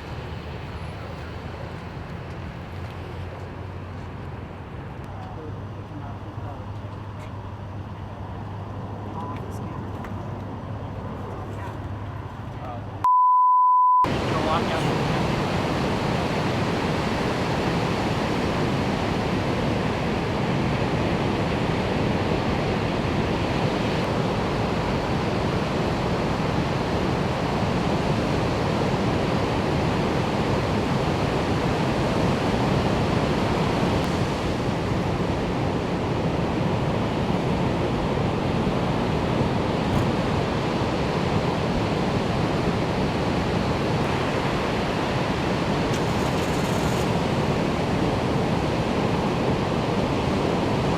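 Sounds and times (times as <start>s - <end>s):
ocean waves breaking: 14.1s - 50.9s.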